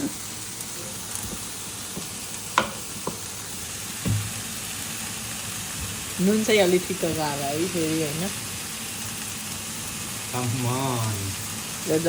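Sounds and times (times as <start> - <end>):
greens sizzling in a pan: 0.0 - 12.0
utensil knocking against pan: 2.6 - 3.2, 4.0 - 4.3.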